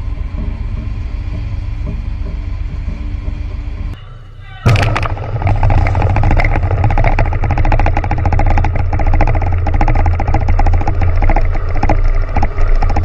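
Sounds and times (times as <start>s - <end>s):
underwater explosion low rumble: 4.7s - 13.0s.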